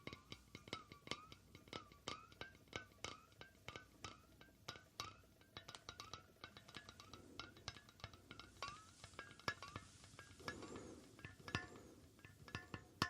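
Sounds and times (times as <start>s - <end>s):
quick irregular tapping: 5.6s - 13.0s.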